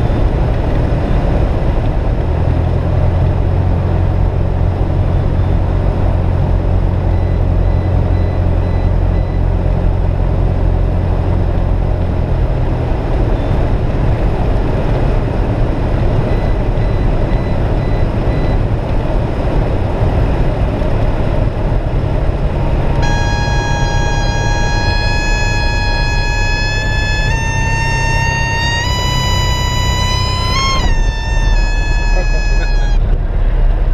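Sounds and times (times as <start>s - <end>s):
reedy tone with several pitches: 22.8s - 33.4s.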